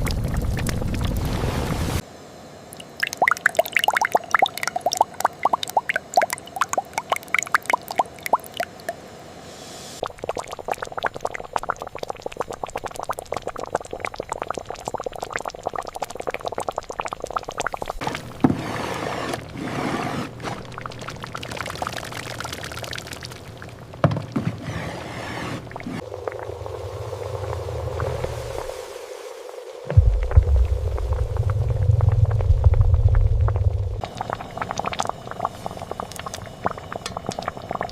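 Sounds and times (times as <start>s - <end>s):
small drips and clicks: 0.0s - 1.3s, 2.8s - 9.0s, 10.0s - 18.4s, 20.6s - 24.4s, 30.1s - 37.9s
liquid pouring and splashing: 0.0s - 2.0s, 2.8s - 9.0s, 10.0s - 19.6s, 20.3s - 24.6s, 29.9s - 37.9s.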